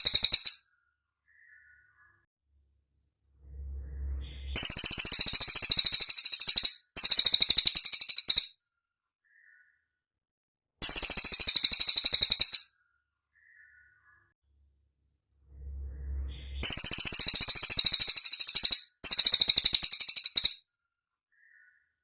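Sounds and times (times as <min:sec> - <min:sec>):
bird high-pitched trills: 0:00.0 - 0:00.6, 0:03.4 - 0:08.5, 0:10.8 - 0:12.7, 0:15.6 - 0:20.6
faint low rumble: 0:02.5 - 0:05.2, 0:14.4 - 0:17.3.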